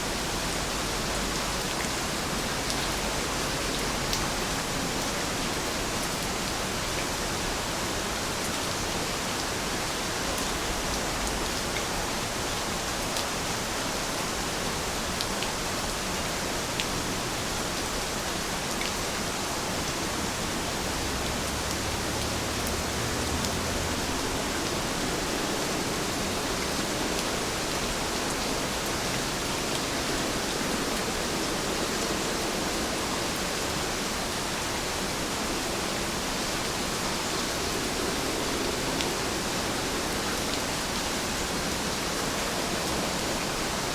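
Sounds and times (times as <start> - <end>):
heavy rain hissing: 16.4 - 43.9.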